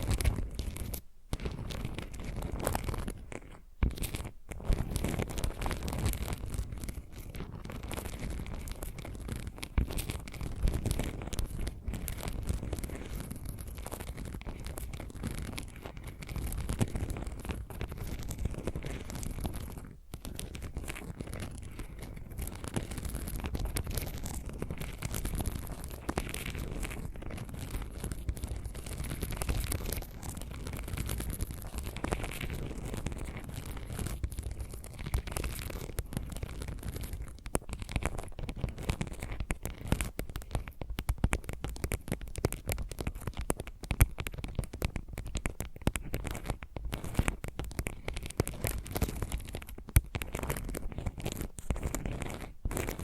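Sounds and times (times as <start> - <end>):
fingernail scratching: 0.0 - 53.0.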